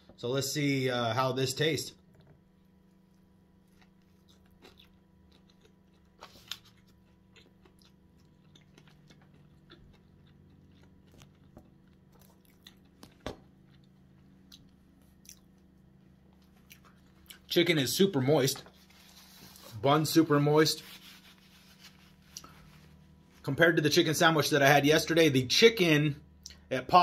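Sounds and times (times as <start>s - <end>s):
crunching while chewing: 2.8s - 17.5s, 21.8s - 23.2s.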